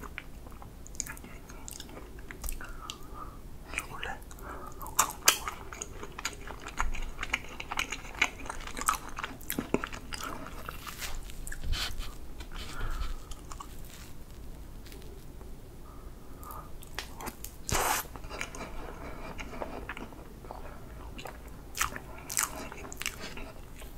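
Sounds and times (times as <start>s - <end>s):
crunchy chewing: 3.7s - 15.3s, 16.4s - 23.9s.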